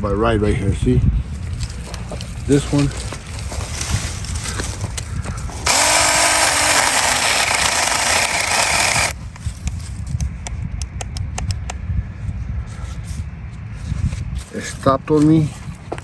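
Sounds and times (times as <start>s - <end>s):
chainsaw cutting wood: 5.6s - 9.2s
electric chainsaw motor whine: 5.6s - 9.2s.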